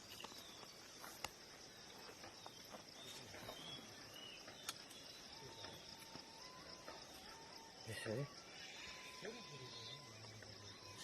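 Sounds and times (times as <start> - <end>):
sharp clicks: 4.6 - 5.0
high-pitched insect chirring: 4.6 - 11.0.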